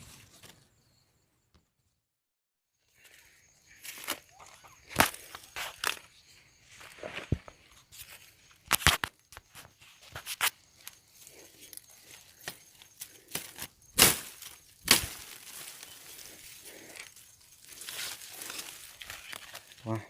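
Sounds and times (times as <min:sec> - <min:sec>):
dry plant material rustling: 0:09.6 - 0:20.0.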